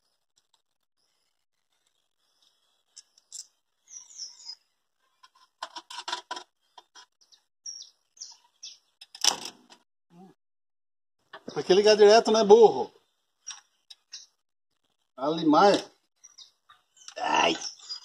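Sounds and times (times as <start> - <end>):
small birds chirping: 0.0 - 5.6, 6.4 - 9.1, 13.0 - 18.0
wiring clicks and rattles: 5.2 - 7.2.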